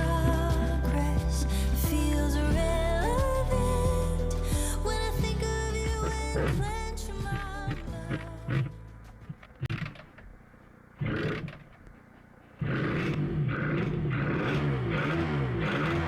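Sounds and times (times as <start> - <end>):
two-stroke engine starting and revving: 11.0 - 11.8, 12.6 - 16.0.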